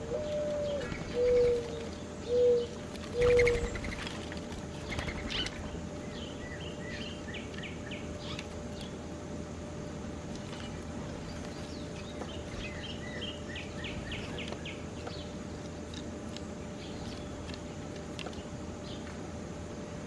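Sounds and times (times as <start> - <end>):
songbirds chirping: 0.0 - 20.0
thin steady hum: 0.0 - 20.0.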